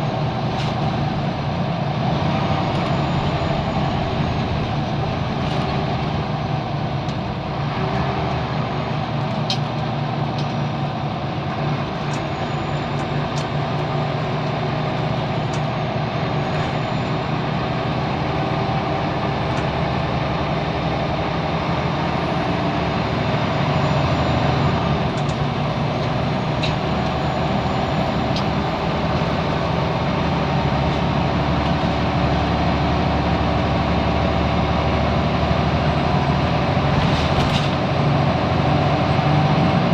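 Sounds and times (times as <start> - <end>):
bus diesel engine running: 0.0 - 39.9
bus body clicks and rattles: 0.1 - 1.2, 8.4 - 10.6, 25.0 - 27.2, 36.7 - 38.0.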